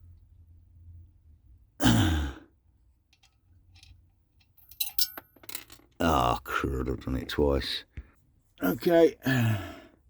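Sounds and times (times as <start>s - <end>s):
man sighing: 9.2s - 9.9s.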